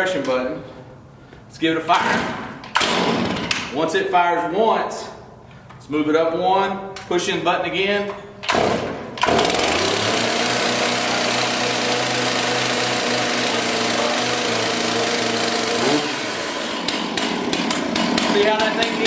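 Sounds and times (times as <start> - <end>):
chainsaw pull-start: 8.4 - 19.0
chainsaw fast idle: 8.5 - 19.0.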